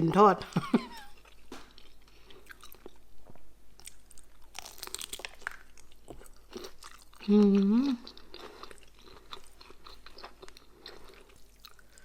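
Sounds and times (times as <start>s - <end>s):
crunchy food chewing: 1.1s - 12.0s.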